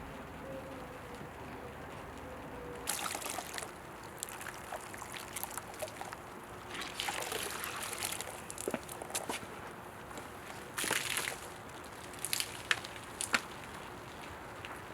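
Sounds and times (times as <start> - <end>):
water splashing on car body: 6.8 - 8.7.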